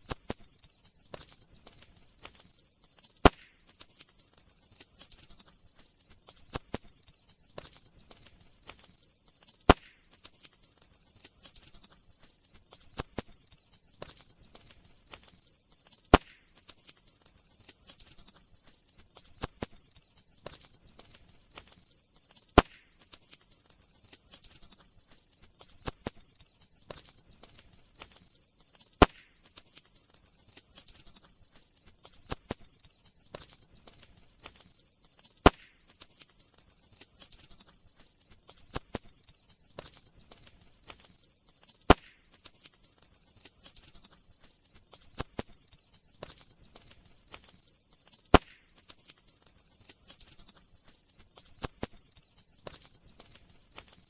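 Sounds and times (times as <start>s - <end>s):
faint steady hiss: 0.0s - 54.0s
loud fire pops: 3.2s - 4.0s, 9.6s - 10.1s, 16.1s - 16.6s, 22.6s - 23.0s, 29.0s - 29.4s, 35.4s - 35.9s, 41.9s - 42.3s, 48.3s - 48.8s.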